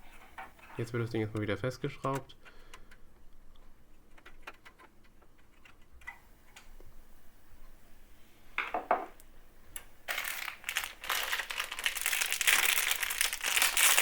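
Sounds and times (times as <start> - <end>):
packaging crinkling: 10.1 - 14.0.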